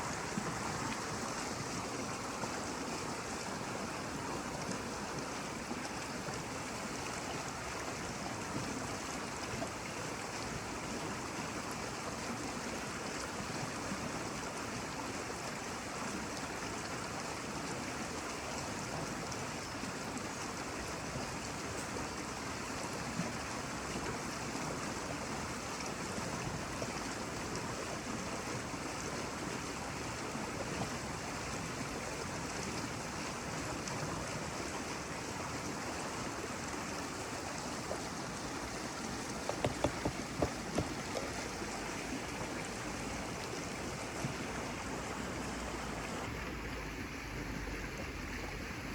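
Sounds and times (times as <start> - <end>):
flowing water rushing: 0.0 - 48.9.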